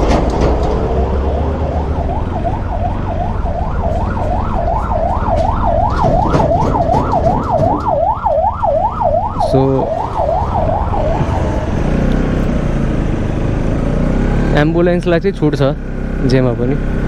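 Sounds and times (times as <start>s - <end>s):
motorcycle engine rumble: 0.0s - 17.0s
wind: 0.0s - 17.0s
ambulance siren yelping: 0.5s - 12.8s.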